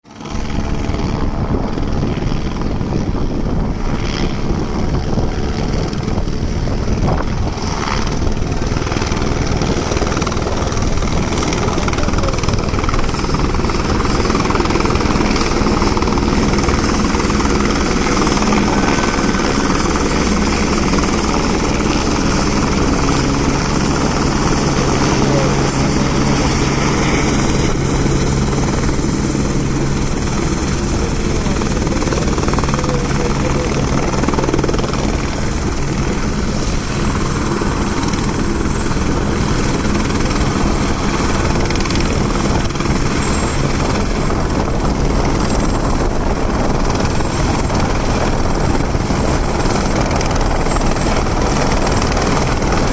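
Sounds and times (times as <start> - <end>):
helicopter rotor and engine: 0.0 - 52.9.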